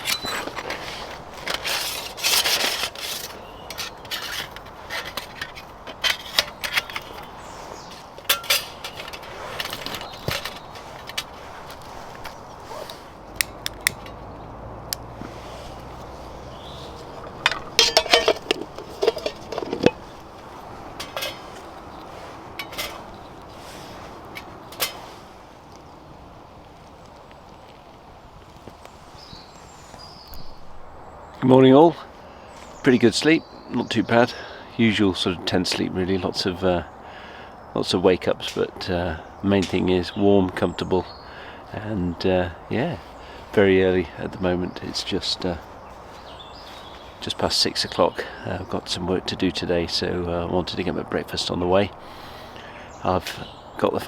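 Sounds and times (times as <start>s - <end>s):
metal cookware clinking and clattering: 1.5s - 7.3s, 8.2s - 11.3s, 17.4s - 20.1s, 21.0s - 21.6s, 22.6s - 23.2s, 24.4s - 25.0s.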